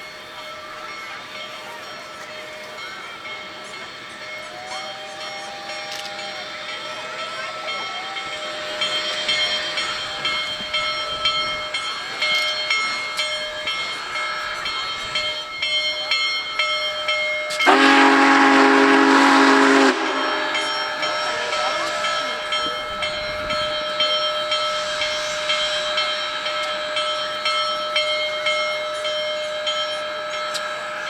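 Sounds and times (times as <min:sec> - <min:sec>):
steam locomotive hissing: 0:00.0 - 0:31.0
steam whistle blast: 0:17.5 - 0:23.6.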